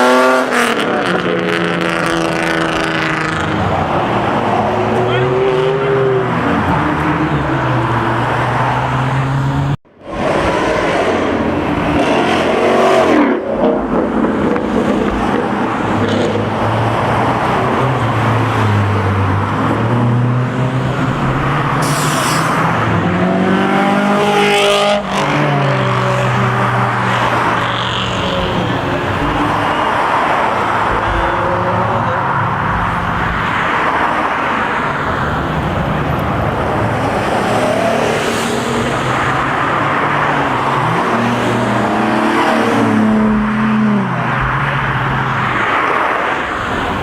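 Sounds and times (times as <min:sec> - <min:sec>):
race car engines revving past: 0:00.0 - 0:47.0.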